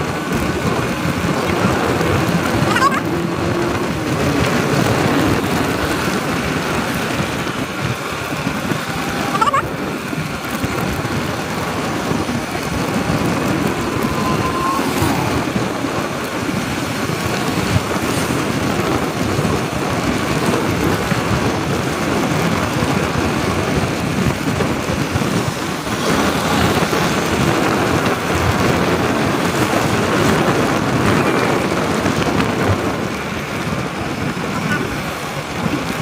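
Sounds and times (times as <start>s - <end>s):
motorcycle engine and road noise: 0.0s - 36.0s
wind buffeting microphone: 0.0s - 36.0s.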